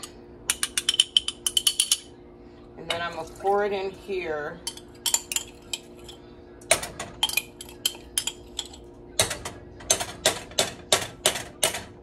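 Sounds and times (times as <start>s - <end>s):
metal spoon clinking: 0.0s - 2.1s, 4.6s - 6.2s, 7.2s - 8.9s
steady low hum: 0.0s - 12.0s.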